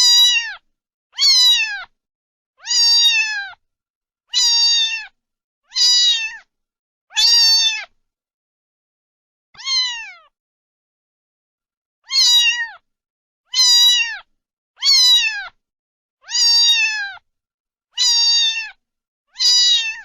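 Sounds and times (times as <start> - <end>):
cat meowing: 0.0 - 0.6, 1.2 - 1.9, 2.6 - 3.6, 4.3 - 6.5, 7.1 - 8.0, 9.6 - 10.3, 12.0 - 12.8, 13.5 - 15.6, 16.2 - 17.2, 18.0 - 20.0.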